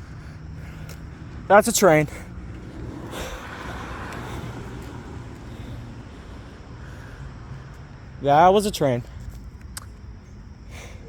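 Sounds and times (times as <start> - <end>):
distant train rumble: 0.0 - 8.7.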